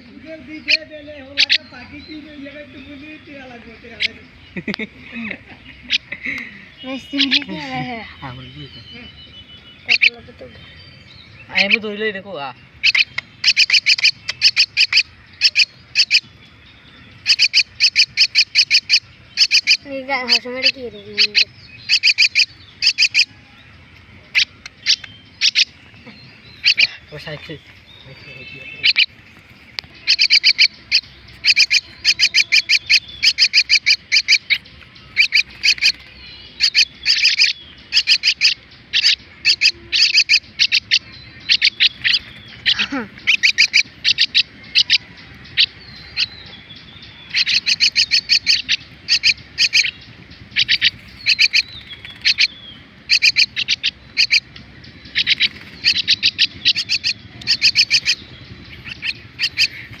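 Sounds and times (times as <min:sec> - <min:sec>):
bird chicks harsh chirps: 0:00.0 - 1:00.0.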